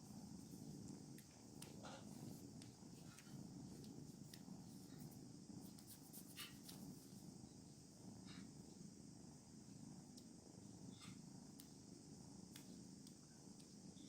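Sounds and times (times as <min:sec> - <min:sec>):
cat purring: 0:00.0 - 0:08.9
faint clicks and rustles: 0:00.1 - 0:07.4.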